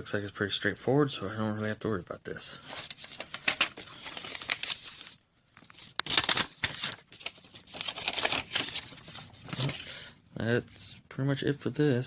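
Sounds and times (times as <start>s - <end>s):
paper rustling and crinkling: 2.6s - 10.1s.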